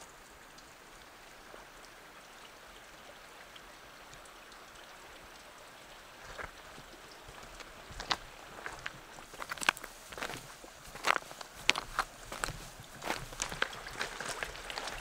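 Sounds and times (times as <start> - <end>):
creek water over rocks: 0.0 - 15.0
small ticks: 6.3 - 15.0.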